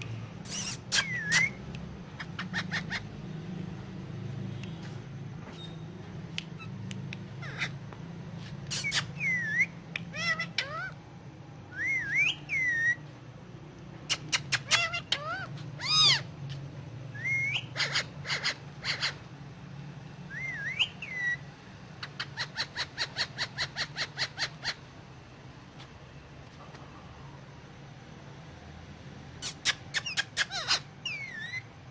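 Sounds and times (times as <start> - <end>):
parakeet whistling and chirping: 0.5 - 3.1, 5.5 - 5.9, 7.4 - 7.8, 8.7 - 11.0, 11.7 - 13.0, 14.1 - 16.3, 17.1 - 19.2, 20.3 - 24.8, 29.4 - 31.7.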